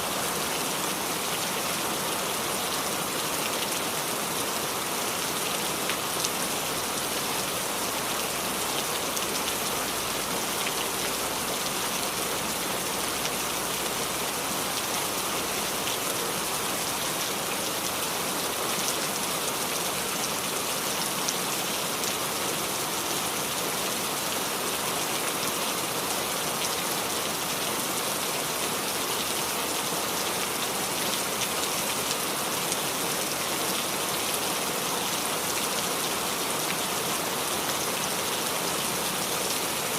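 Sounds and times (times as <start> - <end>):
rain dripping on leaves: 0.1 - 39.9.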